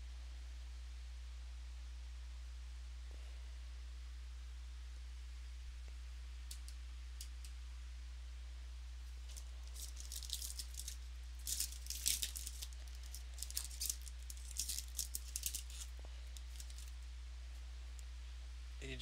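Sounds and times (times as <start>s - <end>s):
card packs crinkling and clicking: 9.3s - 17.0s.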